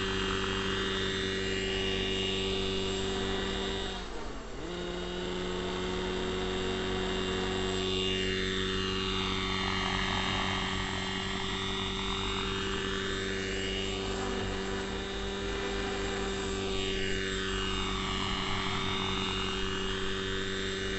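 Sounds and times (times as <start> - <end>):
model helicopter engine and rotors: 0.0 - 20.9.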